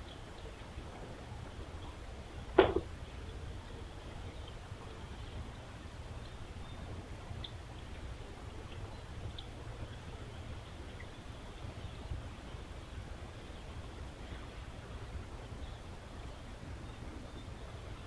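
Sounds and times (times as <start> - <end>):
short sharp knock: 2.6 - 2.9.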